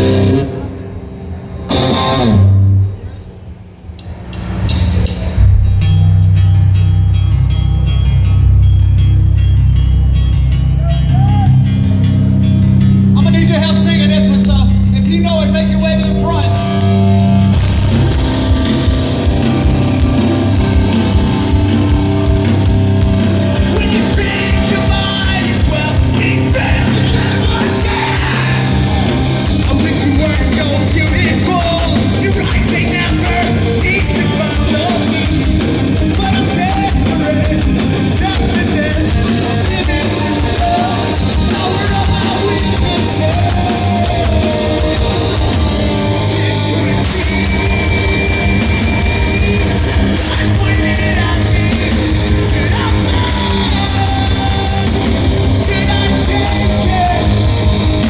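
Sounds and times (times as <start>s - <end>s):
heavy rock band playing: 0.0s - 3.0s, 4.0s - 58.0s
person yelling and singing: 10.8s - 11.7s, 23.6s - 45.6s, 49.2s - 57.6s.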